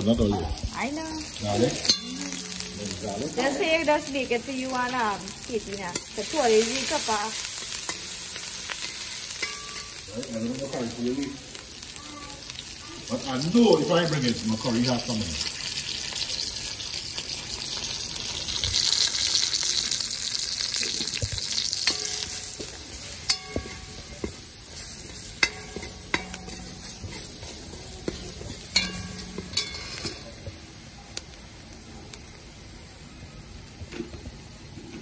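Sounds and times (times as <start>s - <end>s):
vegetables sizzling in hot oil: 0.0s - 35.0s
spoon clanking against pot: 8.8s - 10.0s, 21.8s - 30.4s
metal spoon scraping pot: 23.2s - 30.3s.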